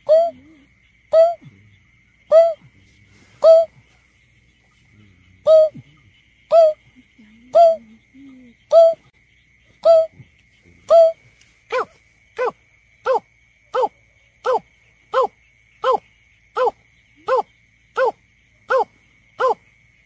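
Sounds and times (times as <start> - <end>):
bird hooting calls: 0.0 - 4.0, 4.9 - 9.0, 9.8 - 10.2, 10.9 - 12.5.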